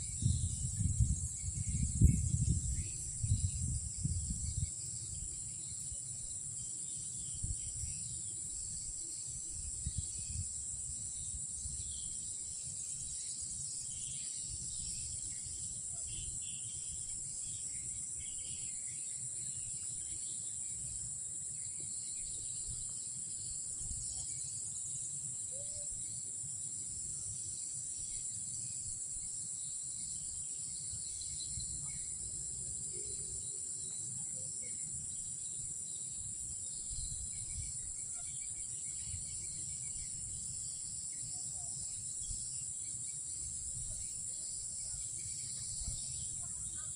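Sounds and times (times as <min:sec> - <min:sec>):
faint insect chirps: 0:00.0 - 0:46.9
night insects chorus: 0:00.0 - 0:46.9.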